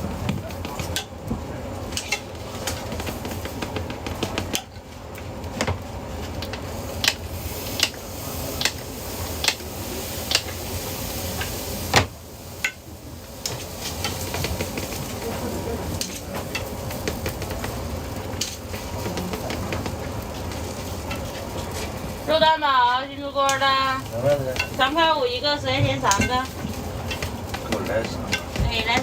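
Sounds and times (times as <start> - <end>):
utensils clinking against pans: 0.0 - 1.2, 1.9 - 4.8, 11.3 - 29.0
steady background hum: 0.0 - 29.0.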